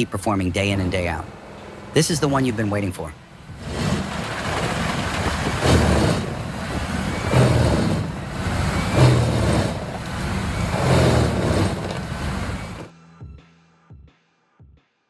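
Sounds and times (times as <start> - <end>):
diesel grinder surging: 0.0 - 12.9.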